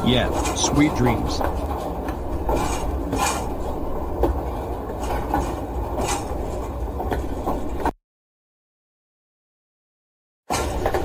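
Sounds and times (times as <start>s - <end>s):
train rumbling on rails: 0.0s - 7.9s, 10.5s - 11.0s.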